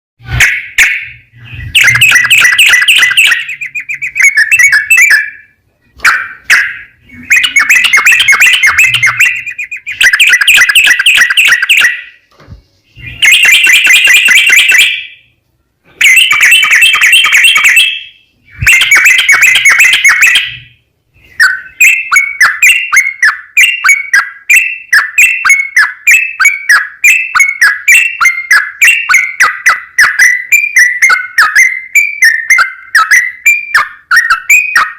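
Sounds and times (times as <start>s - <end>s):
bulbul singing: 0.2s - 34.9s.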